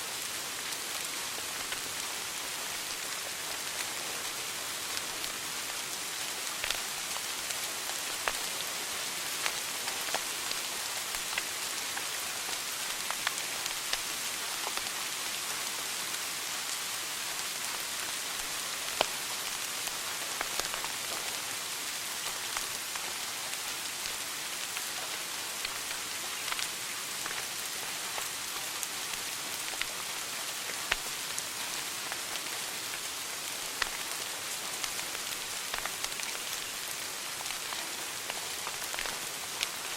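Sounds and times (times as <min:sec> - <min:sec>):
wood fire crackling: 0:19.8 - 0:21.0, 0:25.6 - 0:29.9, 0:30.9 - 0:31.1, 0:33.6 - 0:39.2.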